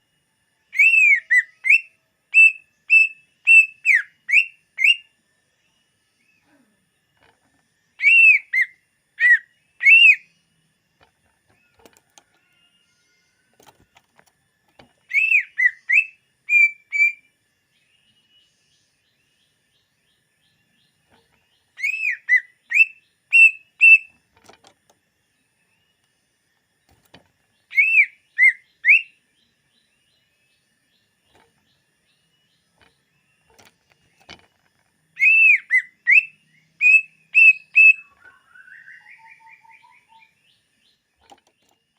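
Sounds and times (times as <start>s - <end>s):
bird singing whistled notes: 0.4s - 6.5s, 7.9s - 10.7s, 14.7s - 24.2s, 27.6s - 34.3s, 35.0s - 41.8s.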